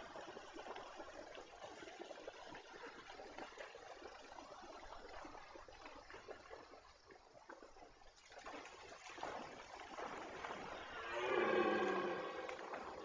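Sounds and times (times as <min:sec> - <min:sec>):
deer stag roaring: 0:10.8 - 0:13.0.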